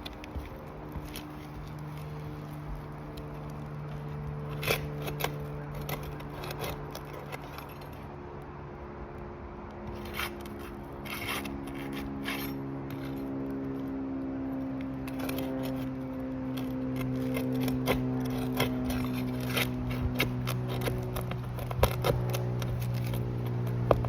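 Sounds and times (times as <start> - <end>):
roof shingles scraping: 0.0 - 8.1, 9.9 - 13.8, 14.9 - 24.0
steady low hum: 0.0 - 24.0.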